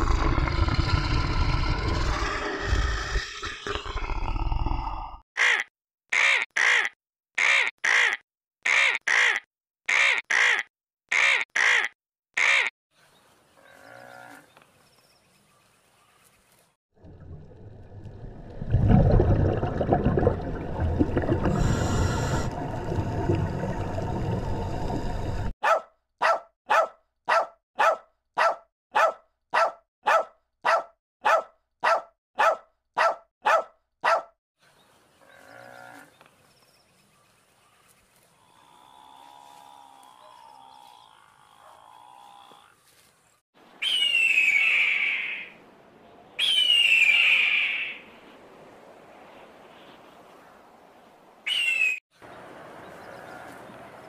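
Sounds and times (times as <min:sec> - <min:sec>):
underwater rush of water: 0:17.0 - 0:25.5
dog barking: 0:25.6 - 0:34.3
bird of prey calling: 0:43.8 - 0:45.6, 0:46.4 - 0:48.0, 0:51.5 - 0:52.0.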